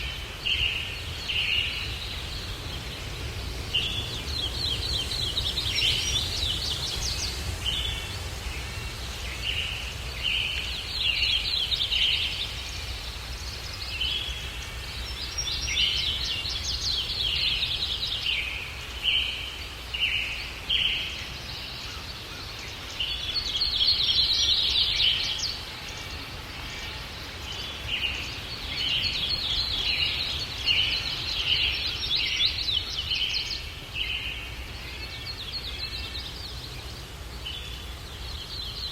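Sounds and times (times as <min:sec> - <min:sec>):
low rumble of breeze: 0:00.0 - 0:38.9
songbirds chirping and singing: 0:00.0 - 0:38.9.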